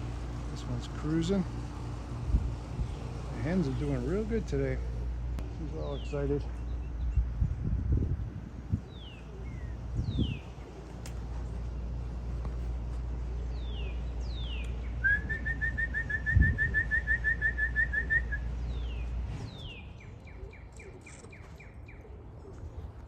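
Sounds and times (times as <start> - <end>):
wind rumble on microphone: 2.1 - 3.8, 6.5 - 10.7, 15.0 - 17.4
rapid bird trill: 13.5 - 22.2.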